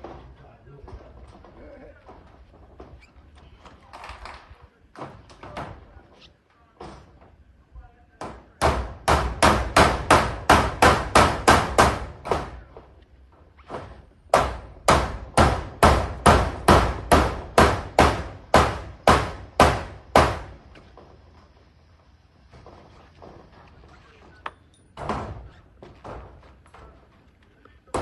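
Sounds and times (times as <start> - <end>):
hammer driving nails: 8.2 - 12.6, 13.6 - 20.6.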